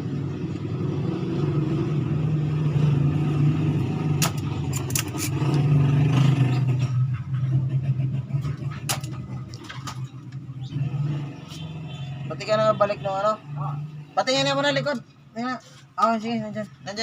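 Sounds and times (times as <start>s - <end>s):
sharp clicks and knocks: 4.2s - 5.7s, 8.5s - 10.4s.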